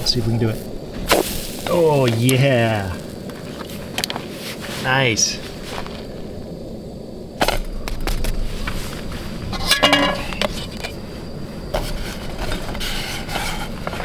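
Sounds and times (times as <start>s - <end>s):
metal spatula scraping a pan: 9.5s - 10.9s, 11.8s - 14.0s
metal clattering: 9.5s - 11.0s.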